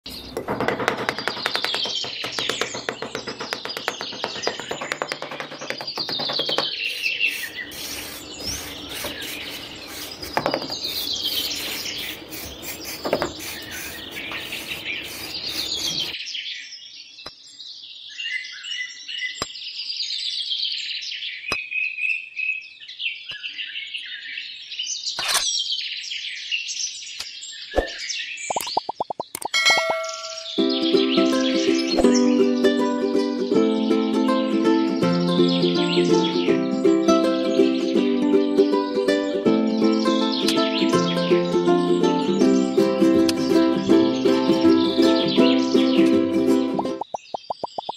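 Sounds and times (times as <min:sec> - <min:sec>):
songbird chirping: 0:00.0 - 0:47.9
trowel scraping sand: 0:00.1 - 0:16.2.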